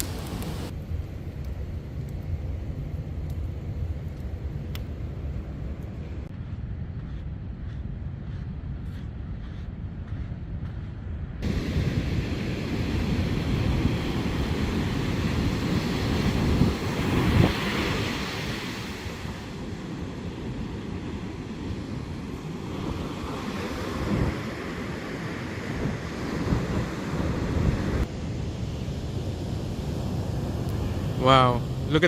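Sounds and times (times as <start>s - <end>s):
wind buffeting microphone: 3.4s - 32.0s
ocean surf: 11.4s - 32.0s.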